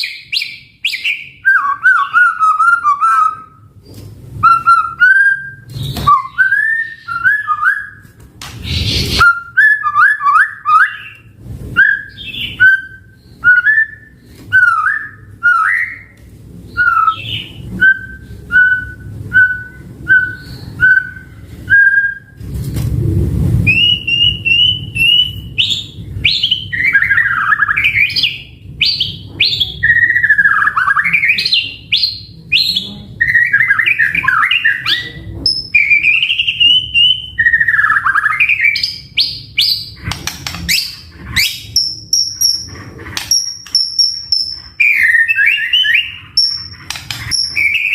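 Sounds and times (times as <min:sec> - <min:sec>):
bird singing whistled notes: 0:00.0 - 0:03.5, 0:04.4 - 0:08.0, 0:11.8 - 0:16.1, 0:16.7 - 0:22.4, 0:23.7 - 0:39.9, 0:43.3 - 0:47.9.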